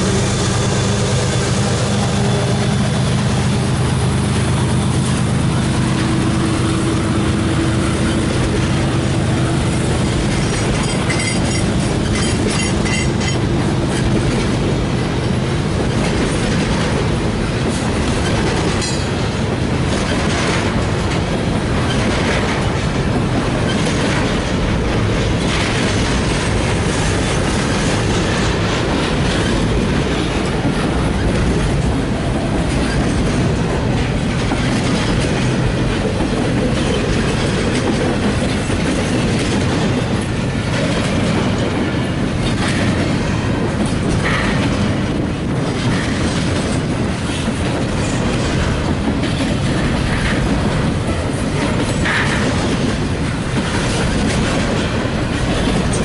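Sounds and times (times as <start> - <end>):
steel wheels rumbling on rail: 0.0 - 56.0
wheels clacking over rail joints: 0.0 - 56.0.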